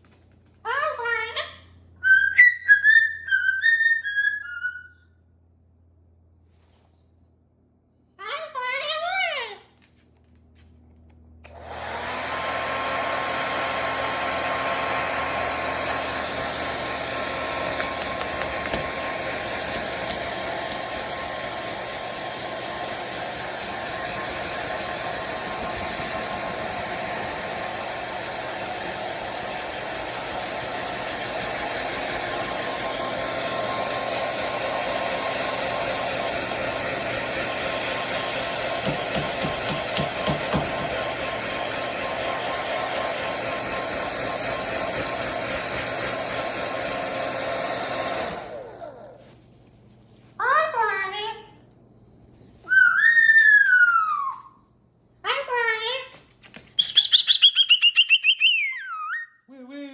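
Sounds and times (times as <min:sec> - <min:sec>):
hair dryer running: 0:11.4 - 0:49.4.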